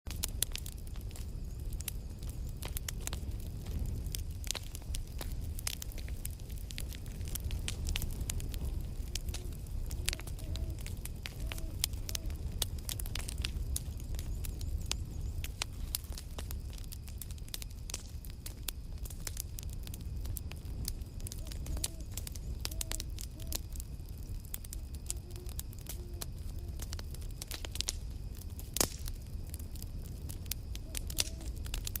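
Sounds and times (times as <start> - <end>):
campfire crackling and popping: 0.1 - 32.0
faint whistling tones: 8.0 - 12.6, 20.8 - 27.3, 30.7 - 31.7.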